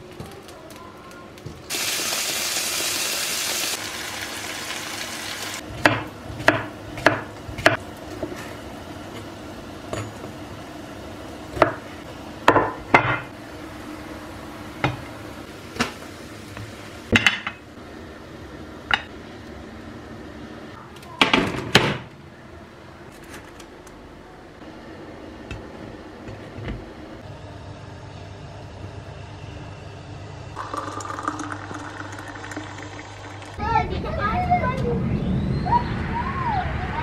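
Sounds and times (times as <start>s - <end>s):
loud steady hiss: 1.7s - 5.6s.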